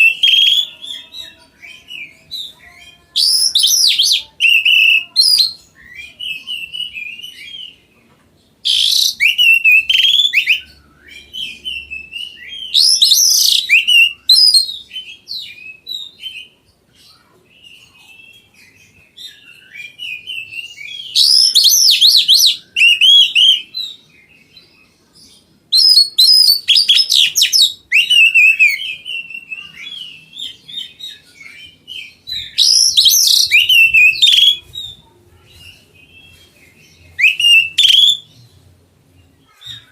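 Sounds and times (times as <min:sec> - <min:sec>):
bird singing whistled phrases: 0:00.0 - 0:07.8, 0:08.6 - 0:16.5, 0:19.2 - 0:24.6, 0:25.7 - 0:34.9, 0:37.0 - 0:38.3.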